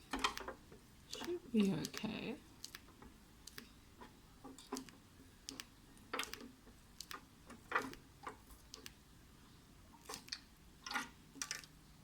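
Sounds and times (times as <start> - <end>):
faint plastic clicks and taps: 0.1 - 9.0.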